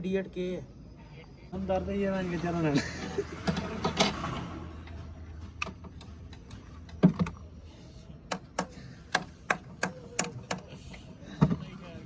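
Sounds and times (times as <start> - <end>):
metallic clicks of hand tools: 8.3 - 10.8.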